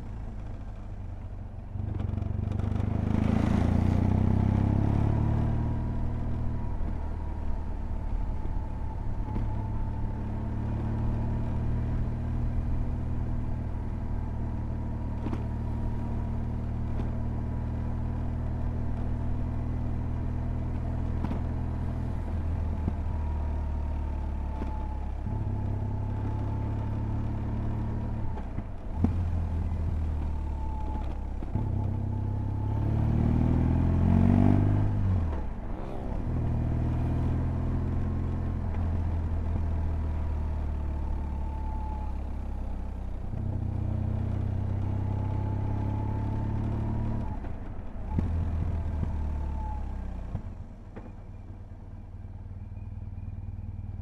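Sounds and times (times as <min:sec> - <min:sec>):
motorcycle engine accelerating: 0:00.0 - 0:51.4.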